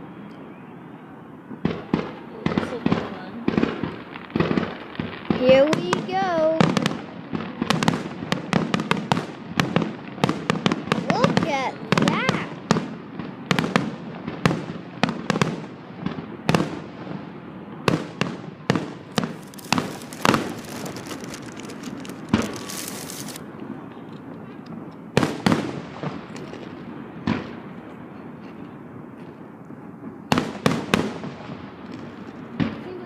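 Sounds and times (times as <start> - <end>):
fireworks bangs: 1.4 - 23.6, 24.7 - 28.1, 29.3 - 33.0
fireworks crackling hiss: 16.6 - 23.6.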